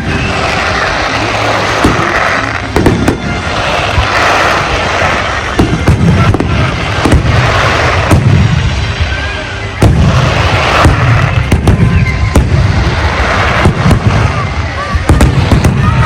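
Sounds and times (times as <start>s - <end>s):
fireworks bangs: 0.0s - 16.0s
fireworks crackle: 0.0s - 16.0s
low booming rumble: 5.6s - 16.0s.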